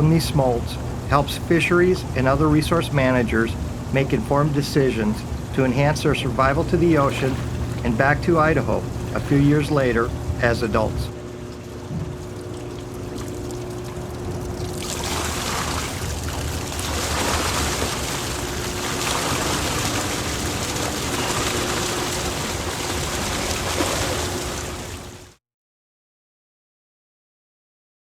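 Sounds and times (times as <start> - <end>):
faint mechanical hum: 0.0 - 25.4
rushing water: 0.0 - 25.4.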